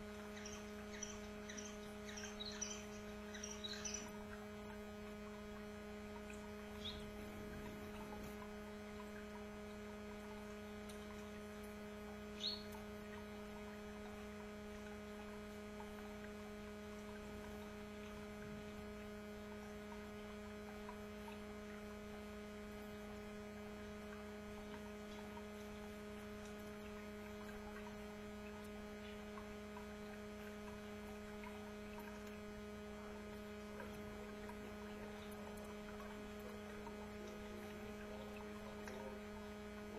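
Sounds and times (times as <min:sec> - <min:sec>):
electrical hum: 0:00.0 - 0:39.9
canary chirps: 0:00.1 - 0:04.4, 0:06.7 - 0:08.2, 0:12.4 - 0:12.9.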